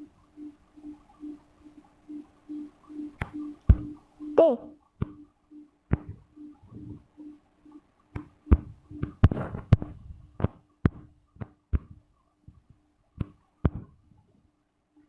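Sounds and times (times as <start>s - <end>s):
faint steady hum: 0.0s - 15.0s
taps on a touchscreen: 3.0s - 4.0s, 5.0s - 5.3s, 5.9s - 7.4s, 8.1s - 12.6s.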